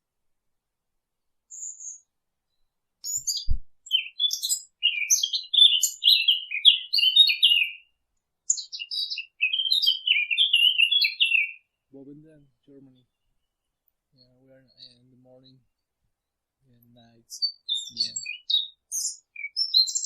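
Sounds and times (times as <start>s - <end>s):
songbird warbling: 3.0s - 7.9s, 8.5s - 13.5s, 16.8s - 20.0s
soft low thump: 3.4s - 3.8s.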